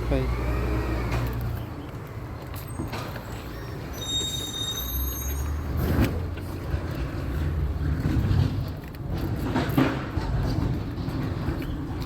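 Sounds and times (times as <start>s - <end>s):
high brake squeal: 2.7s - 6.0s.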